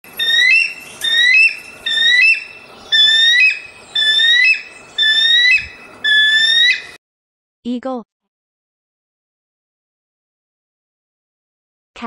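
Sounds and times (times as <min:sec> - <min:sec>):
eagle whistled calls: 0:00.1 - 0:07.0.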